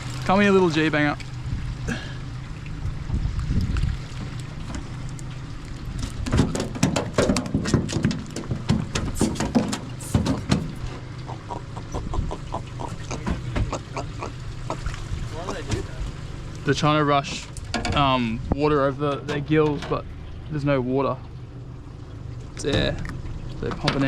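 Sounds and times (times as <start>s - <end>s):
fish thrashing knocks and rattles: 3.5s - 11.5s, 12.1s - 15.9s.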